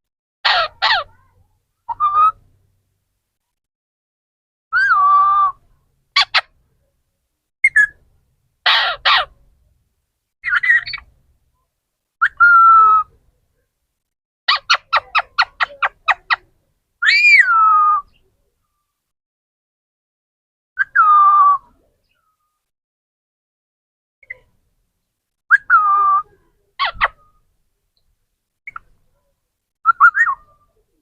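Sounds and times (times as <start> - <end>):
parrot whistling and squawking: 0.4 - 1.1, 7.6 - 8.0, 8.7 - 9.3, 10.4 - 11.0, 14.5 - 16.4, 17.0 - 18.1, 25.5 - 27.4, 29.9 - 30.6.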